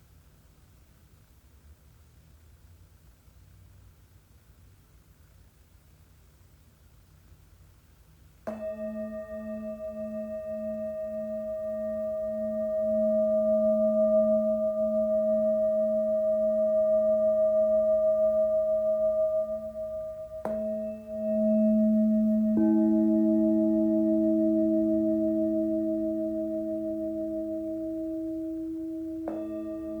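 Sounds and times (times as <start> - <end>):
singing bowl ringing hum: 8.5 - 30.0
singing bowl struck: 8.5 - 30.0.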